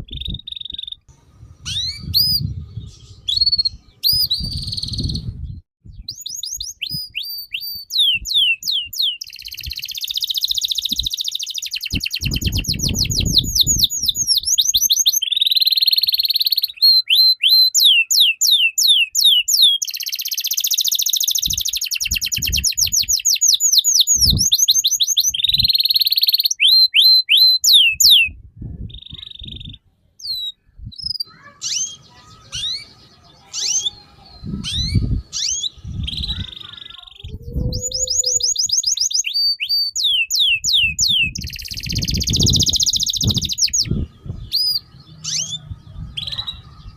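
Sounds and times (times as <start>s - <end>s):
songbird whistling song: 0.0s - 46.9s.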